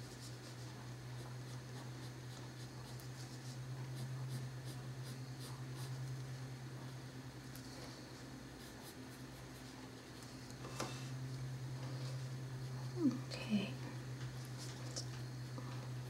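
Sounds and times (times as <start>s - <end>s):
pencil scratching on paper: 1.2s - 6.0s.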